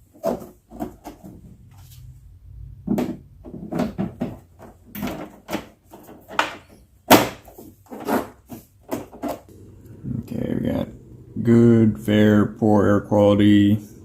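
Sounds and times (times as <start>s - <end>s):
hard objects knocking and clunking: 0.0s - 1.7s, 2.8s - 9.6s.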